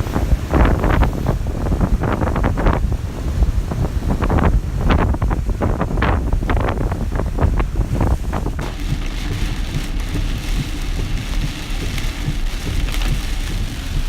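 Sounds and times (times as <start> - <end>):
rain hissing: 0.0 - 14.0
wind rumbling on microphone: 0.0 - 14.0.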